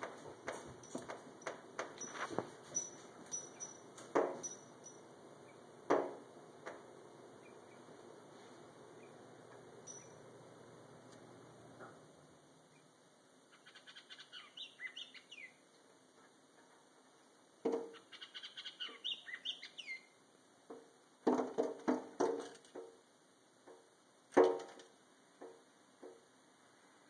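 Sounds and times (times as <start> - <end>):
bird tapping on window glass: 5.9 - 6.8, 17.6 - 18.0, 20.7 - 23.0
small bird twittering: 13.5 - 15.6, 18.0 - 20.1.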